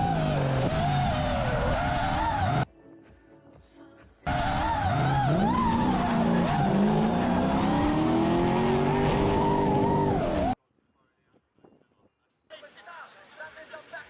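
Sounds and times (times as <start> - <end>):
car engine at high revs: 0.0 - 2.6, 4.3 - 10.6.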